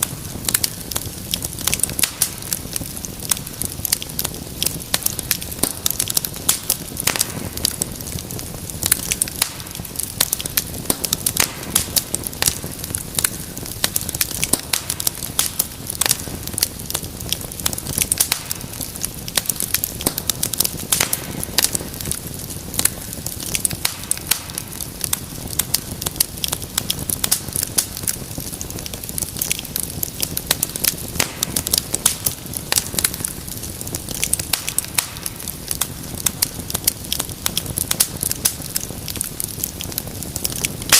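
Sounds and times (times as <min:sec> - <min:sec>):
low rumble of flame: 0:00.0 - 0:40.9
wood fire crackling: 0:00.0 - 0:40.9.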